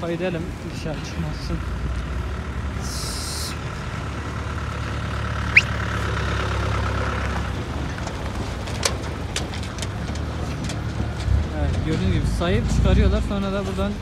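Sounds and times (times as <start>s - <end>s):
heavy engine idling: 0.1s - 14.0s
short rising squeak: 5.5s - 5.8s.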